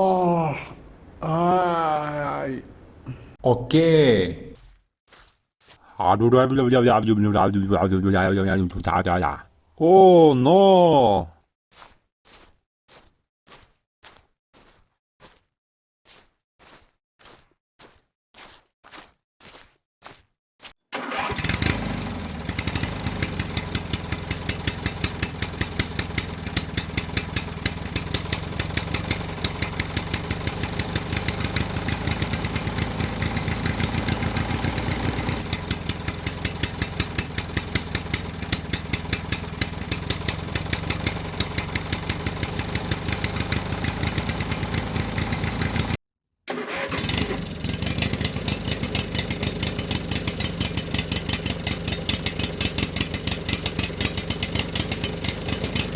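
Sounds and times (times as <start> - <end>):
small engine running: 21.0 - 55.9.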